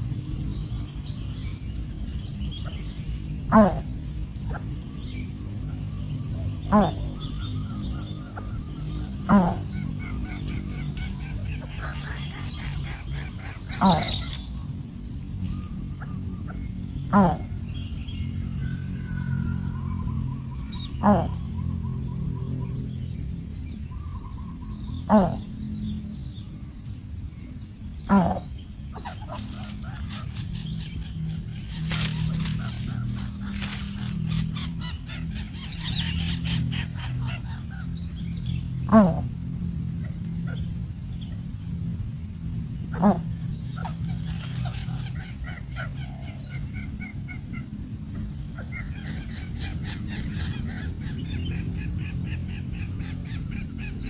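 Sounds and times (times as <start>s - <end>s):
nestling birds calling: 0.0s - 54.0s
steady low hum: 0.0s - 54.0s
steady low rumble: 0.0s - 54.0s.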